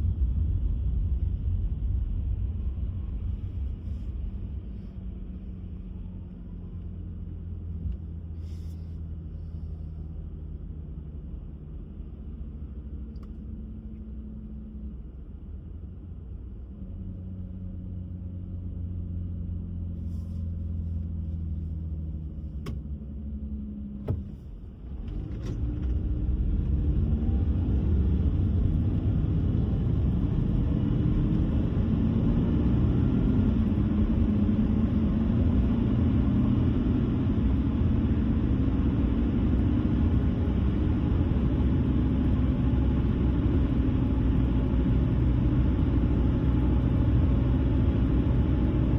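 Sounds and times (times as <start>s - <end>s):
car engine hum: 0.0s - 48.9s
engine and tyre rumble: 0.0s - 48.9s.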